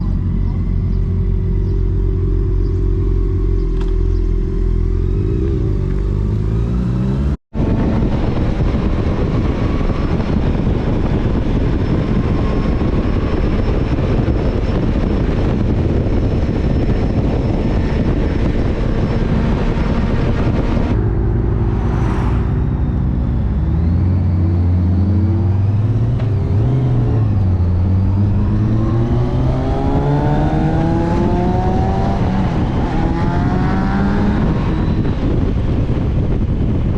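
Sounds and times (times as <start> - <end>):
wind and road noise: 0.0 - 36.9
motorcycle engine: 18.8 - 26.4.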